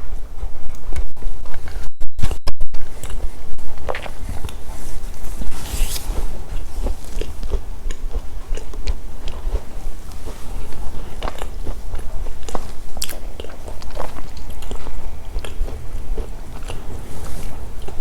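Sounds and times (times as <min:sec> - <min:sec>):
low microphone hum: 0:00.0 - 0:18.0
crunchy snacks being chewed: 0:02.8 - 0:04.6, 0:06.5 - 0:18.0.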